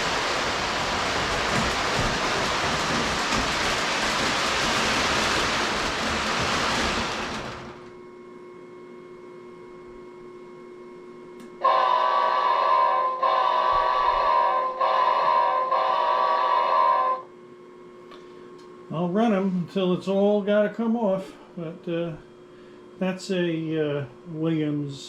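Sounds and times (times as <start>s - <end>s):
loud rushing noise: 0.0s - 7.8s
faint electrical hum: 0.0s - 25.0s
model train electronic horn: 11.6s - 17.3s.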